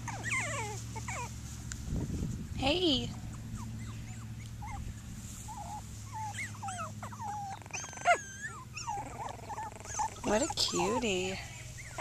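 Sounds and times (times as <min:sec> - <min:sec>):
puppies whining and whimpering: 0:00.0 - 0:01.4, 0:03.1 - 0:12.0
puppy yelp: 0:00.0 - 0:01.4, 0:03.2 - 0:04.8, 0:05.5 - 0:12.0
steady low hum: 0:00.0 - 0:12.0.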